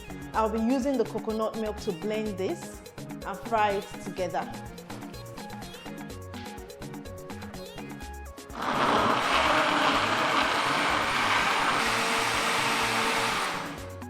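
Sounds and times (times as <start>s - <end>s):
background music: 0.0s - 14.0s
electric blender running: 8.5s - 14.0s.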